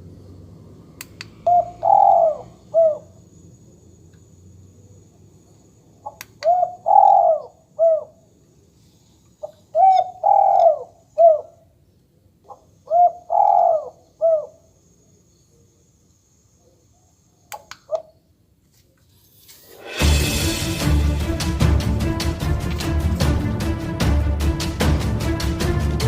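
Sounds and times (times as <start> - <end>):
electronic dove cooing call: 1.4 - 3.2, 6.0 - 8.2, 9.4 - 11.6, 12.5 - 14.7.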